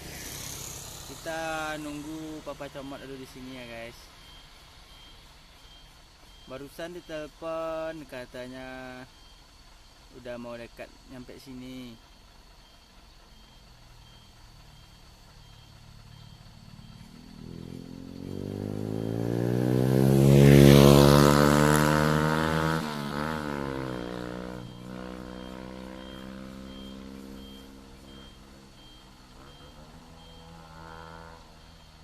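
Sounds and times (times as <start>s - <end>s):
vehicle engine driving past: 0.0s - 3.4s, 13.6s - 32.0s
short electronic beeps: 1.0s - 10.3s, 11.6s - 32.0s.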